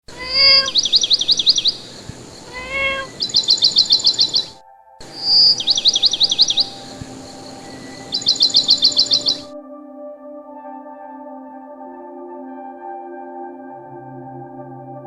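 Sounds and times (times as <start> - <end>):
bird chirping: 0.1 - 9.5
soft ambient music: 0.2 - 15.0.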